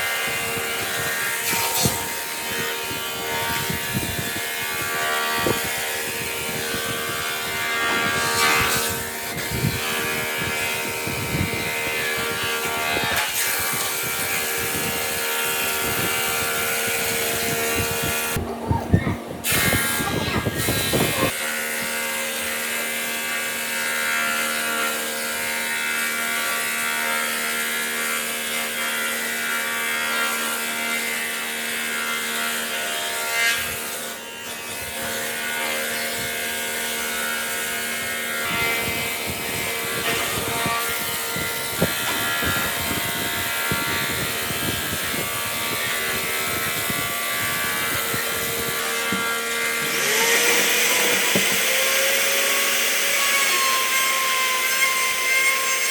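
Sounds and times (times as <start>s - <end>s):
power tool motor humming: 0.0s - 18.6s, 19.2s - 32.9s, 33.5s - 55.9s
tool scraping against wood: 33.5s - 55.9s.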